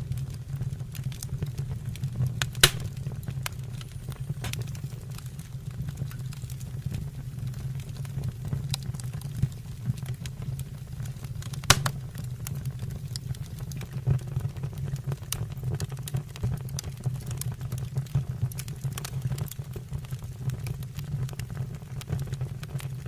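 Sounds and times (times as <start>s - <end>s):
stove fire crackling: 0.0s - 23.0s
loud pop from the fire: 2.4s - 4.8s, 11.4s - 12.8s.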